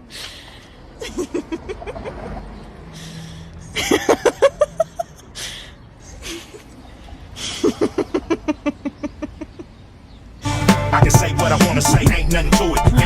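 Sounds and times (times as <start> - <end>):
breathy snorts: 2.8 - 3.8.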